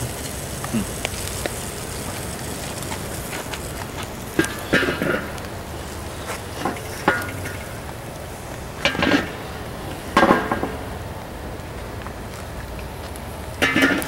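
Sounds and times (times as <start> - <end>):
burgers sizzling on grill: 0.0 - 14.0
metal utensil clanking on grill grate: 8.8 - 9.3, 13.6 - 14.0.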